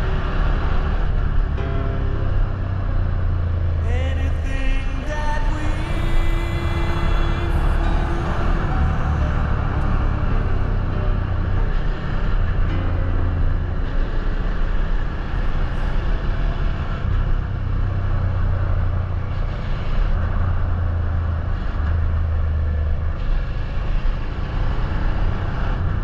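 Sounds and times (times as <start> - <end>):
wind and road noise: 0.0 - 26.0
motorcycle engine cruising: 5.4 - 26.0.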